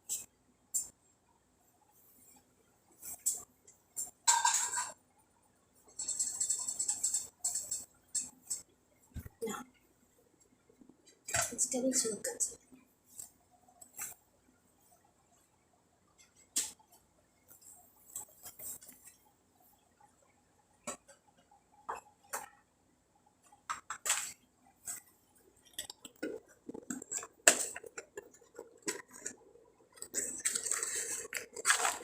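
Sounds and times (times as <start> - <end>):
dishes and utensils clinking: 4.0 - 5.0, 5.9 - 8.6.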